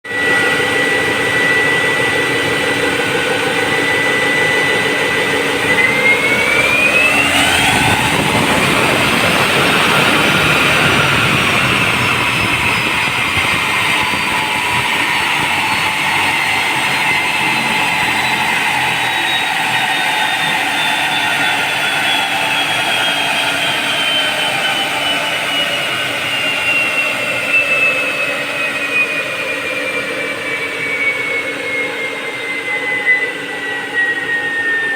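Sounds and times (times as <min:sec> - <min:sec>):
turbocharger whistling: 0:00.1 - 0:34.9
diesel engine revving: 0:00.4 - 0:26.7.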